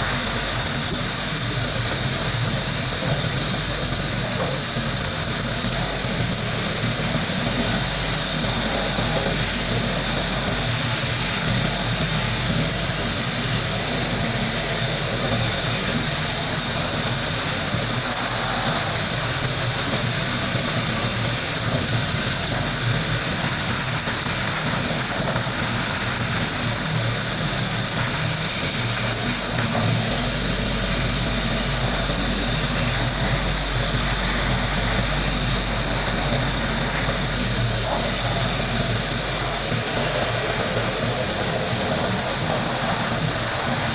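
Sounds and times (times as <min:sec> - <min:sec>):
sandblasting gun hissing: 0:00.0 - 0:43.9.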